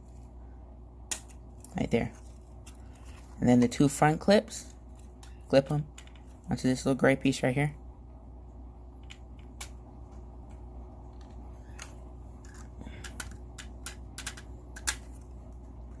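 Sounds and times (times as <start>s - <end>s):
low steady hum: 0.0s - 16.0s
plastic pieces clicking: 11.2s - 15.2s.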